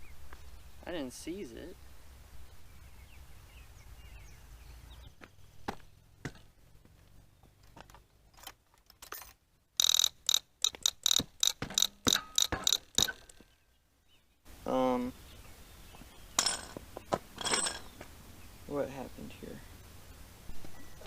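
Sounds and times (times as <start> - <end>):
sharp metallic clicking: 9.8 - 13.5.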